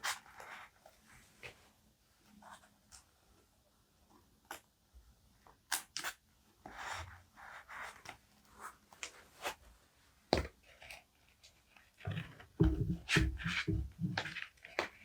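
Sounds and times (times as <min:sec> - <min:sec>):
sharp tap: 0:12.6 - 0:14.3.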